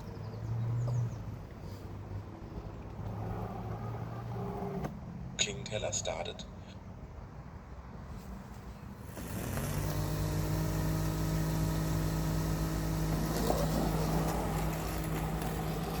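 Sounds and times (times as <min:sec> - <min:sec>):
robotic lawn mower motors: 0:08.8 - 0:16.0.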